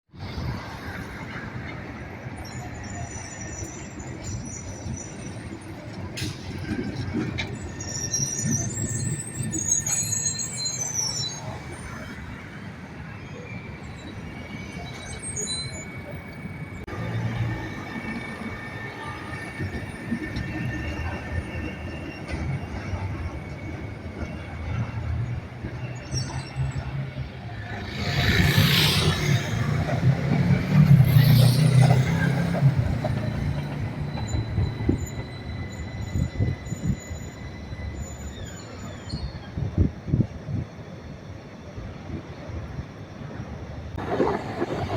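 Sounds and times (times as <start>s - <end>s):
tram rumbling on rails: 0.1s - 44.9s
high wheel squeal: 0.3s - 40.2s.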